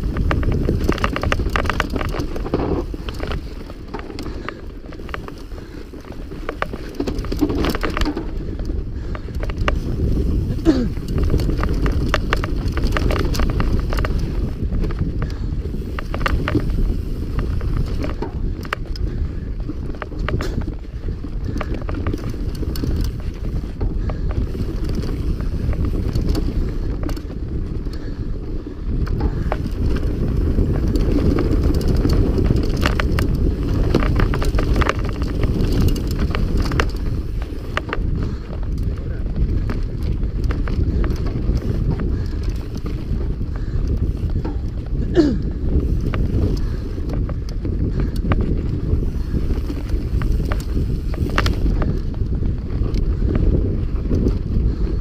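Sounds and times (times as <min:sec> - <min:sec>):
bike rattling and clicking: 0:00.0 - 0:55.0
bike tyres rumbling over dirt: 0:00.0 - 0:55.0.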